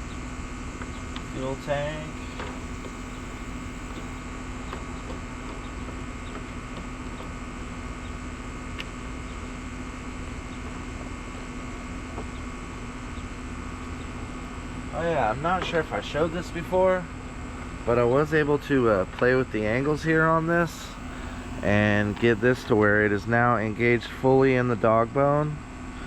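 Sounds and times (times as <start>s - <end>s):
room noise hum and hiss: 0.0s - 26.0s
constant low tone: 2.0s - 4.2s, 20.8s - 22.7s.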